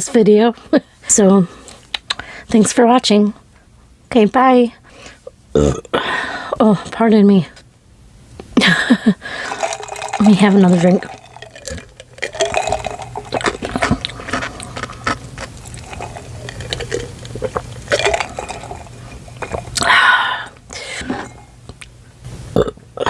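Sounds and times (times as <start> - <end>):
breathy sound: 9.2 - 9.8, 19.8 - 21.5
person sipping and swallowing: 9.3 - 21.6
sparkling water fizzing: 9.4 - 13.8, 15.6 - 19.8.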